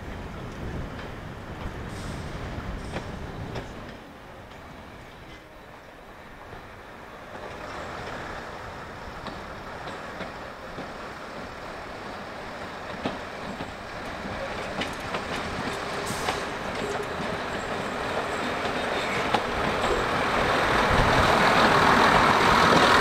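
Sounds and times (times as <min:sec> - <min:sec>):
train rumbling on track: 0:00.0 - 0:23.0.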